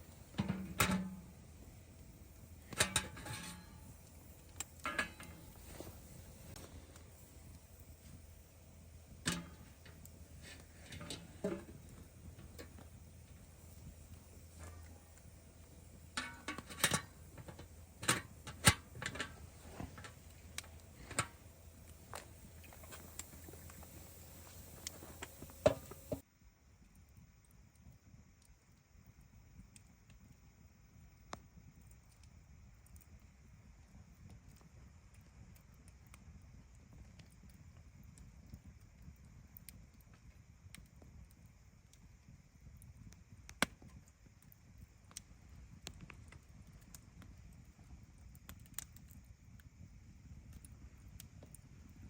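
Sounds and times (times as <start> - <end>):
low steady hum: 0.0 - 52.0
sharp clicks and knocks: 9.2 - 26.2.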